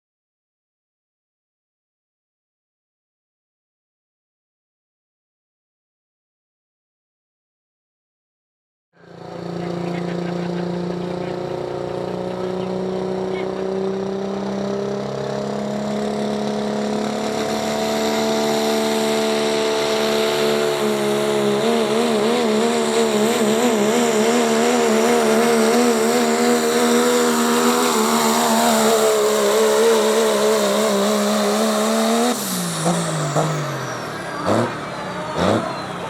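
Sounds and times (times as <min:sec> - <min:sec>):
engine at full throttle: 0:09.0 - 0:36.0.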